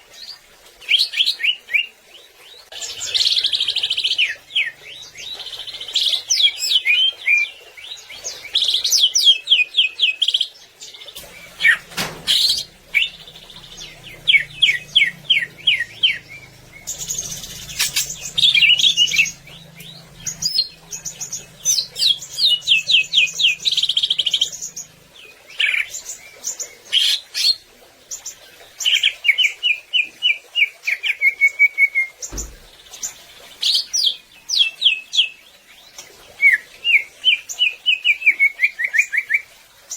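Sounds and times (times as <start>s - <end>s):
bird singing chirps and trills: 0.2s - 39.9s.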